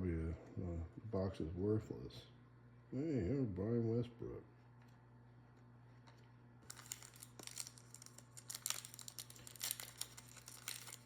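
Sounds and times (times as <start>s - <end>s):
steady low hum: 0.0s - 11.0s
card wrapping crinkling: 6.6s - 11.0s.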